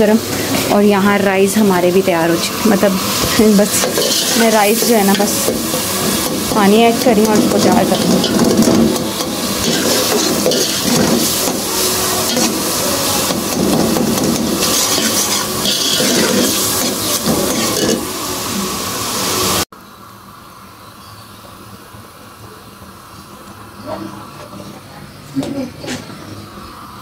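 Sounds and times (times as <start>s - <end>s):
pot hissing: 0.0s - 24.4s
curry sizzling in a pot: 0.1s - 21.5s
metal spatula scraping a pot: 3.7s - 12.7s, 13.3s - 18.1s.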